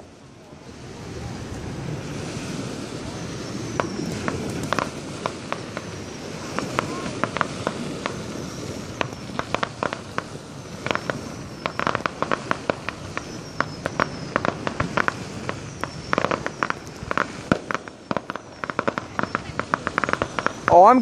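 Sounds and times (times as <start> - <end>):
fireworks crackling and popping: 0.0 - 21.0.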